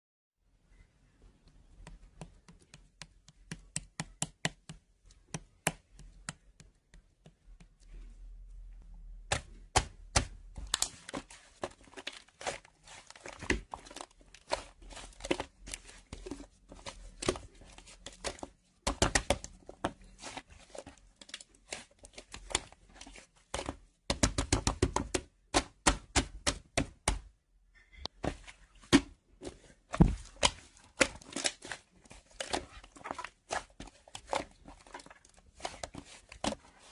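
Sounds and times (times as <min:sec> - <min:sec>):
small sharp clicks and taps: 0:01.4 - 0:08.0.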